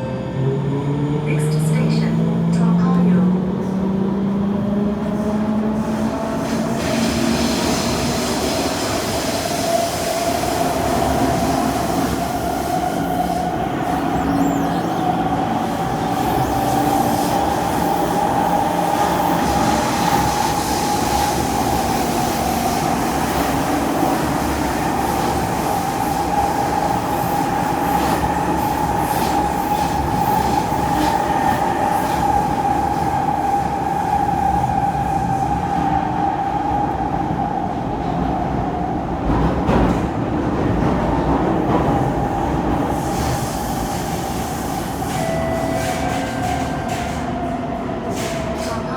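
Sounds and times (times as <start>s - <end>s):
high train whine: 0.0s - 48.9s
wheels rumbling on rail: 14.8s - 48.9s.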